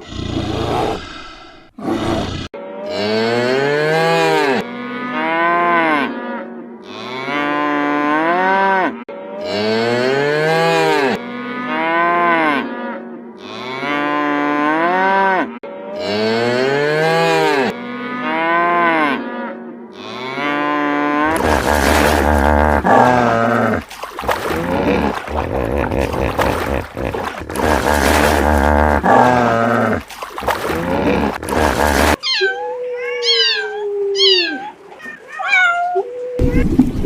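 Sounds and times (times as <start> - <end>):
cattle mooing: 2.1 - 23.8.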